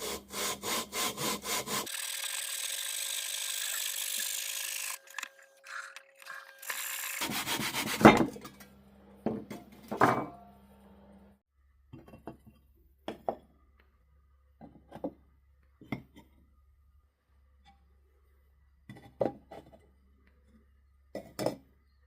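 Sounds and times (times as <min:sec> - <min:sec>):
hand tool scraping: 0:00.0 - 0:08.6.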